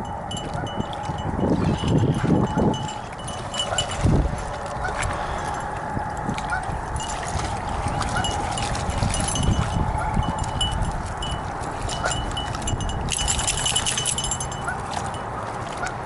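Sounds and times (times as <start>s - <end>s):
metallic jingling of dog tags: 0.3s - 4.1s, 8.2s - 15.2s.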